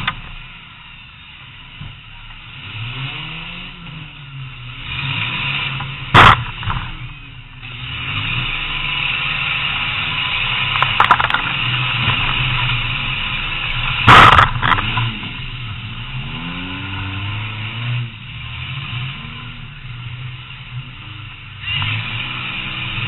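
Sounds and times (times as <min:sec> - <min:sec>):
car engine revving: 0:00.0 - 0:23.0
loud car crash: 0:05.8 - 0:07.2, 0:13.7 - 0:15.4.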